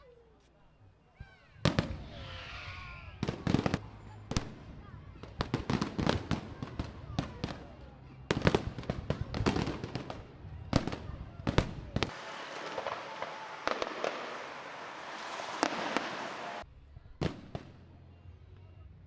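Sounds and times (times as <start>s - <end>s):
fireworks bangs: 8.3s - 16.6s
fireworks crackling: 8.3s - 16.6s.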